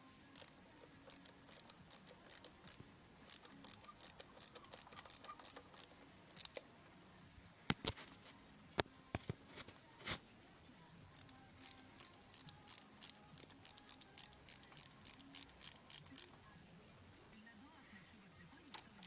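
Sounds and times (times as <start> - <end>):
wrench clicking on bolts: 0.3 - 6.6, 11.2 - 16.3
sharp metallic clicks: 0.3 - 6.7, 11.2 - 16.4.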